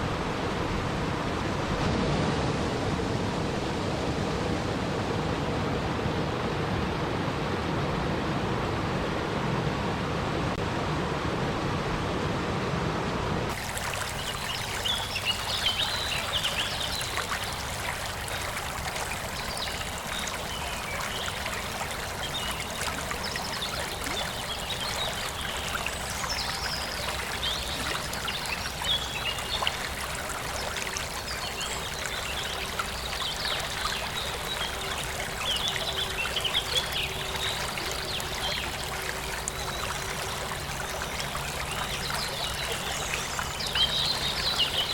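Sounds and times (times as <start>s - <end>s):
water trickling and gurgling: 13.5s - 44.9s.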